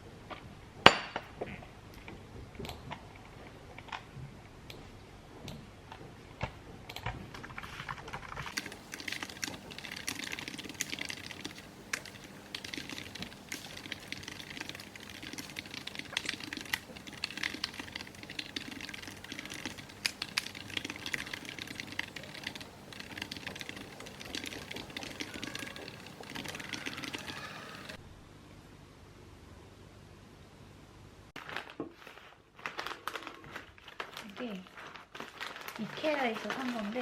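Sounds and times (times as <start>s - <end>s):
keyboard typing: 6.4s - 28.0s.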